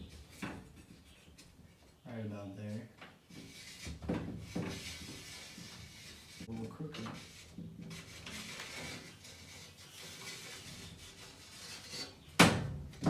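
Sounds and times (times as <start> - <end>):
window frame scraping on wall: 3.3 - 12.3.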